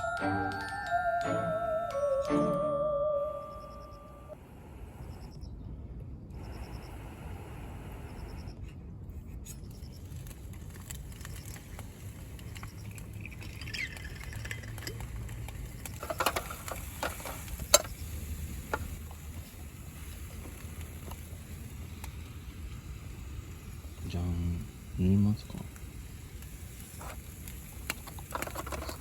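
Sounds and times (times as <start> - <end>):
steady low rumble: 2.7 - 13.4.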